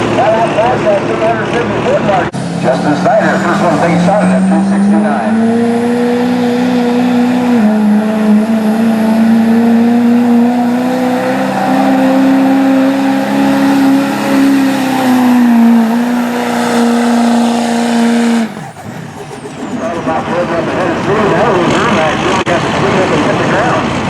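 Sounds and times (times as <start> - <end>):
pickup truck engine revving hard: 0.0 - 24.0.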